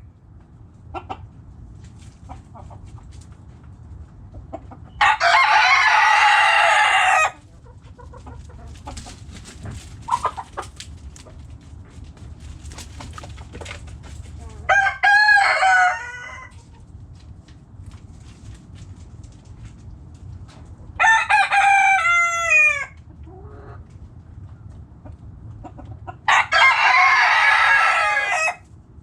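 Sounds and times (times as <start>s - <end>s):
hens clucking softly: 0.4s - 5.1s, 6.2s - 14.8s, 22.9s - 26.4s
rooster crowing: 5.0s - 7.4s, 14.6s - 16.6s, 21.0s - 23.0s, 26.2s - 28.6s.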